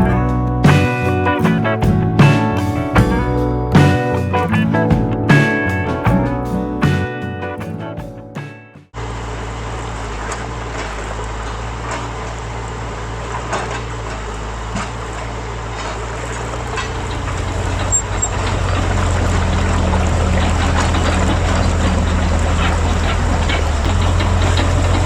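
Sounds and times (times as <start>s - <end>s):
model machine engine running: 16.8s - 25.0s.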